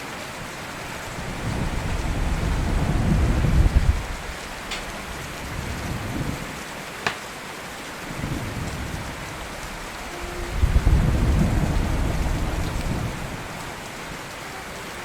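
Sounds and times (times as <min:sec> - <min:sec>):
steady rain: 0:00.0 - 0:15.0
rolling thunder: 0:01.2 - 0:06.4, 0:08.1 - 0:14.2.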